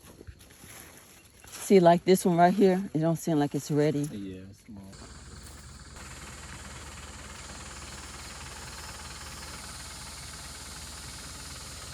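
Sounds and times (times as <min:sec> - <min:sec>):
machine running with low pulse: 0:05.0 - 0:11.9.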